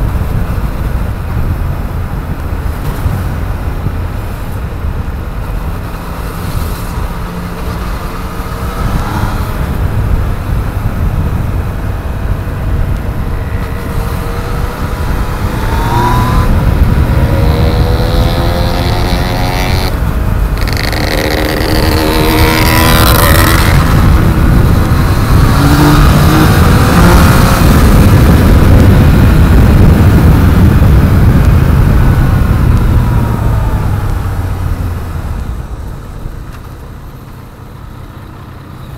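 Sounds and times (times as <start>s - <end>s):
wind rush on microphone: 0.0s - 37.6s
motorcycle engine accelerating: 5.6s - 35.5s.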